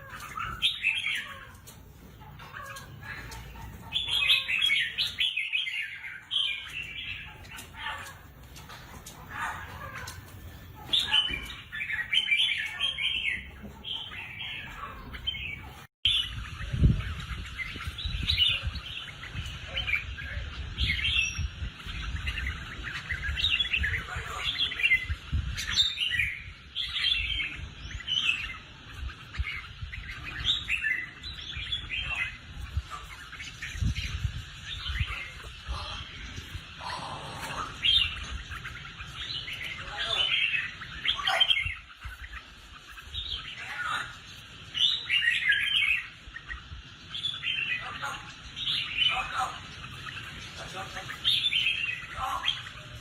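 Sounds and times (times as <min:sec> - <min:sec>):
birds singing: 0:00.0 - 0:53.0.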